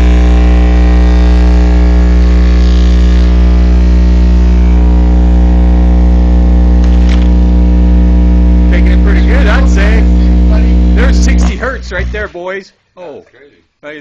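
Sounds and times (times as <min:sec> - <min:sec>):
loud buzzy mains hum from speaker: 0:00.0 - 0:13.0.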